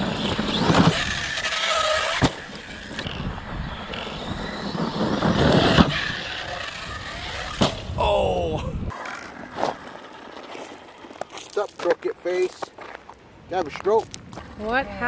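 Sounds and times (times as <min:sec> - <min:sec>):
sharp knocks of landings: 0:00.0 - 0:03.3, 0:04.8 - 0:08.1
electric motor whining: 0:00.0 - 0:08.0.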